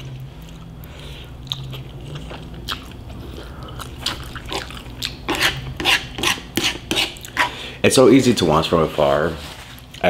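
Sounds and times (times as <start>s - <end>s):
wet chewing smacks: 0.0s - 5.8s
faint low hum: 0.0s - 10.0s.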